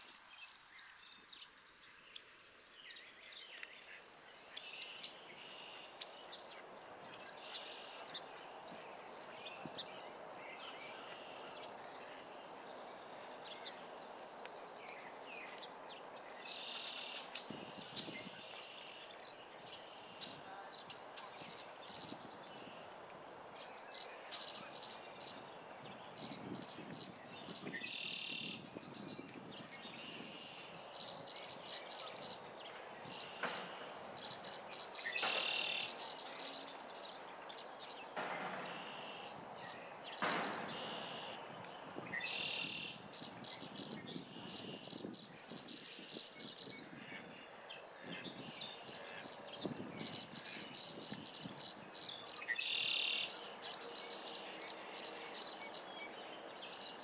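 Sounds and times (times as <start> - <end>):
small birds chirping: 0.0 - 57.0
steady outdoor hiss: 0.0 - 57.0.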